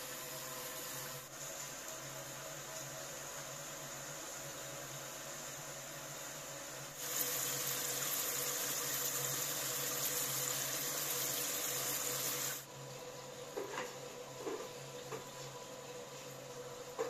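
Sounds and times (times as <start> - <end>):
potatoes sizzling in hot oil: 0.0 - 17.0.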